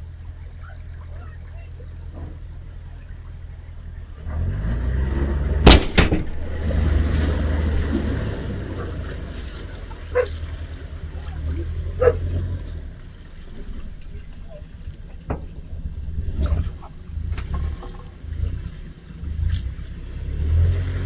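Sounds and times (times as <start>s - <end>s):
boat rumble: 0.0s - 21.0s
loud sharp bangs: 5.6s - 6.6s.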